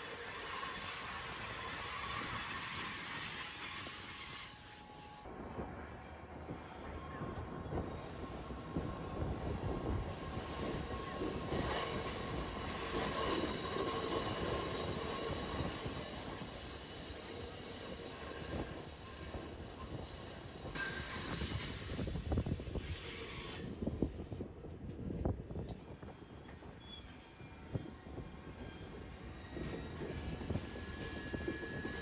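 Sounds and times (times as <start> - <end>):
high squeal of train wheels: 0.0 - 32.0
train wheels rumbling on rails: 0.0 - 32.0.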